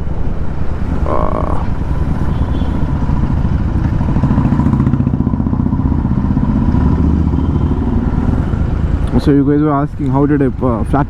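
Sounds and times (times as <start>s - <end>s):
motorcycle engine running loud: 1.0s - 9.2s.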